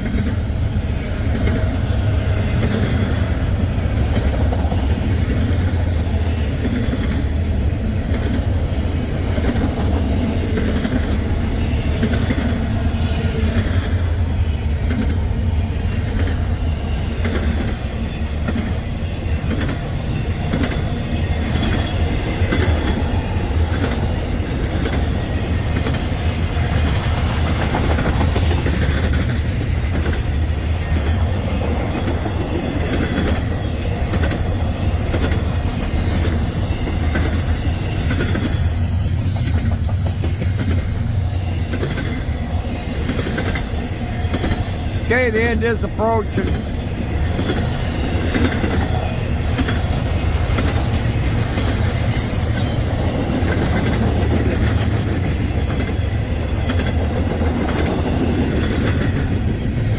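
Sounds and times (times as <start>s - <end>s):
wheels clicking over rail joints: 0.0s - 45.1s, 46.3s - 59.9s
freight train rumbling: 0.0s - 59.9s
wheel squeal: 34.2s - 40.0s, 47.1s - 53.0s.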